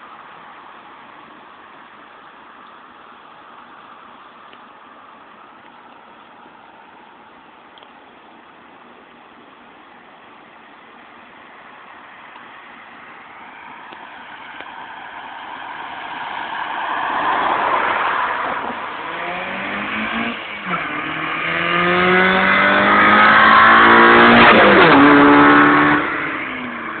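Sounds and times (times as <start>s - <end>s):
car engine accelerating hard: 15.5s - 27.0s.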